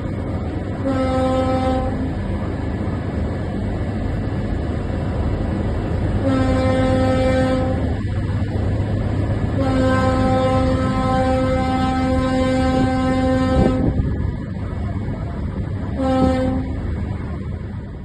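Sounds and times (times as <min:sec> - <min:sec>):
steady low rumble: 0:00.0 - 0:18.0
boat horn blasts: 0:00.8 - 0:02.2, 0:06.2 - 0:08.1, 0:09.5 - 0:14.2, 0:15.8 - 0:16.9.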